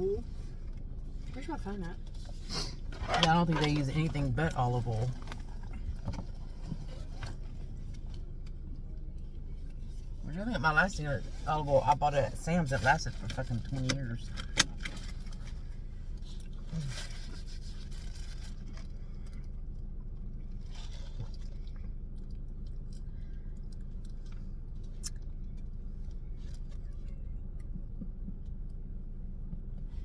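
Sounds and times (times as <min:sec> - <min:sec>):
steady low hum: 0:00.0 - 0:30.0
rustling: 0:12.7 - 0:19.5
chewing and crunching: 0:13.0 - 0:29.0.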